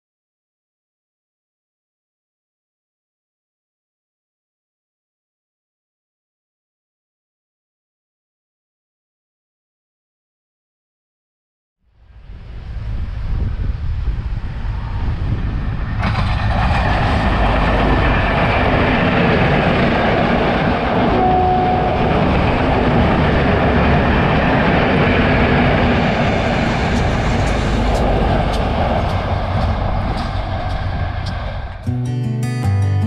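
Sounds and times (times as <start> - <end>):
train passing at speed: 12.0 - 33.0
wheels clicking over rail joints: 15.9 - 31.9.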